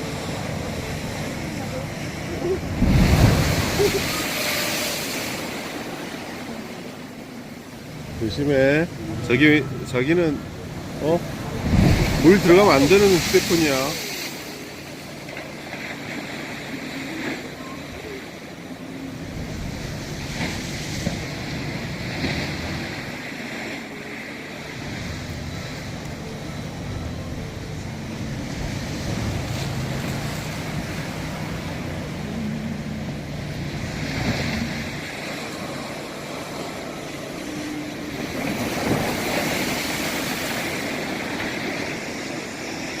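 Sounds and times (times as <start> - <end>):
wind rumbling on microphone: 0.0 - 14.4, 24.8 - 43.0
sea waves breaking: 0.0 - 43.0.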